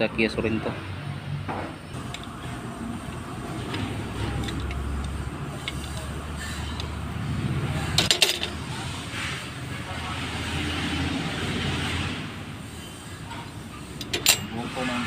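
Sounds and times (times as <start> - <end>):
engine rumble: 0.0 - 15.0.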